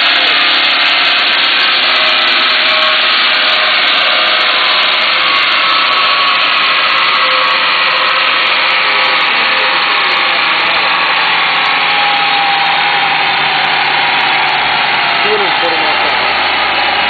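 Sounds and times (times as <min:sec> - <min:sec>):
engine roaring on dynamometer: 0:00.0 - 0:17.0.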